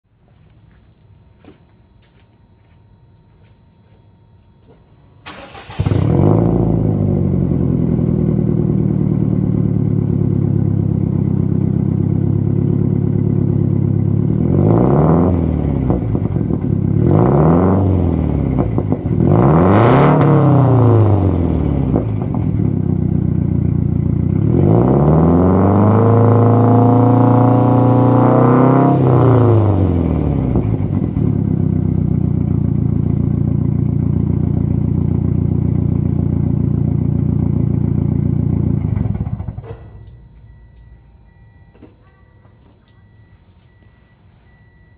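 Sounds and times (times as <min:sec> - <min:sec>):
car engine starting and revving: 0:05.2 - 0:39.8.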